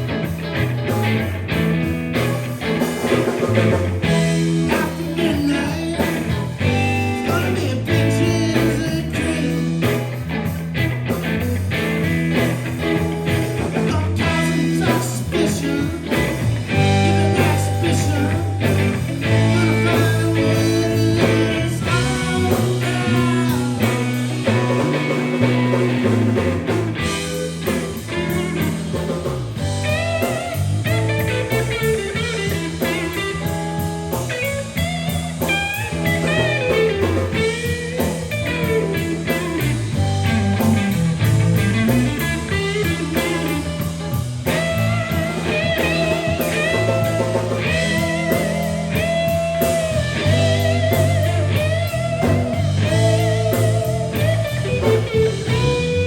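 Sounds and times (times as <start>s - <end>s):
bass line: 0.0s - 56.0s
drums: 0.0s - 56.0s
electric guitar lead: 0.0s - 56.0s.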